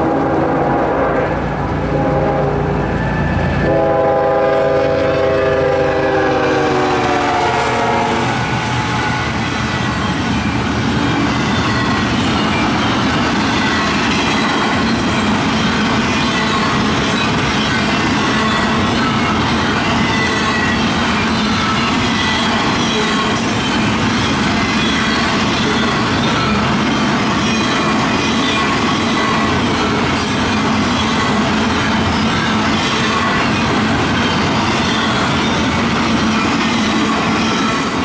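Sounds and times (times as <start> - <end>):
locomotive air horn: 0.0 - 9.2
freight train cars rumbling: 0.0 - 38.0.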